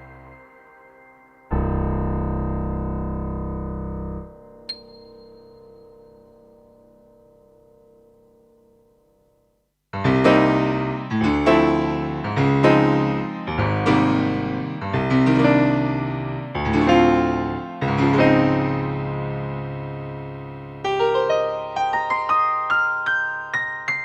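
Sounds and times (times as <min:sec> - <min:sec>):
synthesizer chords: 0:10.0 - 0:22.0.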